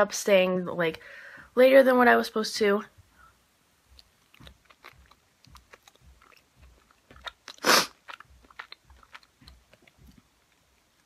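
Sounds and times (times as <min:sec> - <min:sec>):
chewing with wet mouth clicks: 0:03.9 - 0:11.0.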